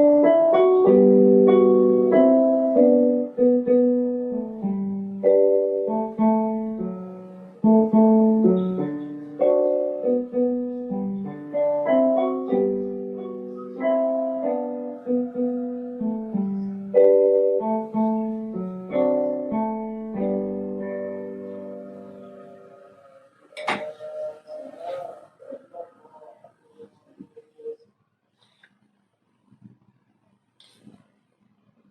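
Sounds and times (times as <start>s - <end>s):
solo piano playing: 0.0s - 23.1s.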